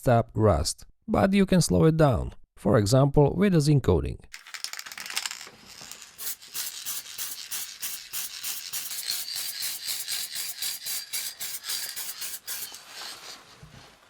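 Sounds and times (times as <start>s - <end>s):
scraping strokes on steel pipe: 6.6s - 13.6s.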